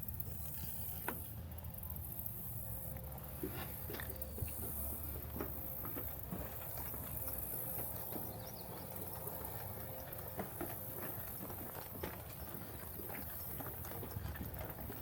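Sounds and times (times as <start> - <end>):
footsteps on trail: 3.2 - 15.0.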